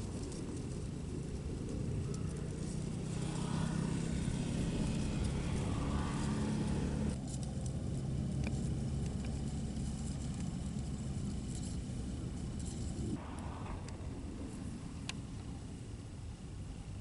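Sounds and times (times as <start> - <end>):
vehicle passing by: 0.0 - 16.2.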